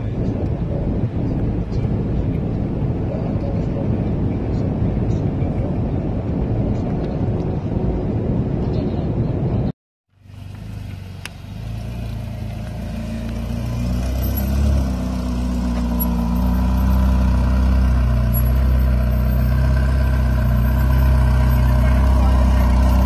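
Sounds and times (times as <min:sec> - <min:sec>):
road noise: 0:00.0 - 0:23.0
car engine at low revs: 0:10.2 - 0:23.0.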